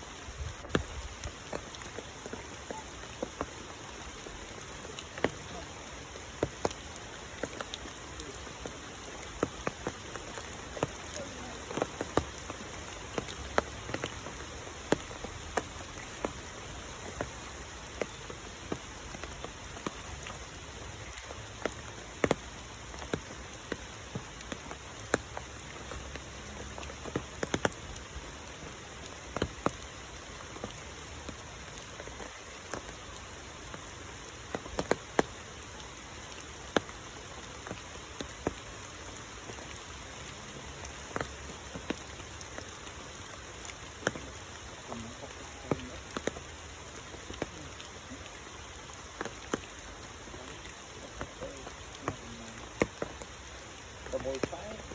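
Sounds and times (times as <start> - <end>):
rain falling: 0.0 - 54.9
raindrops hitting close by: 0.0 - 54.9.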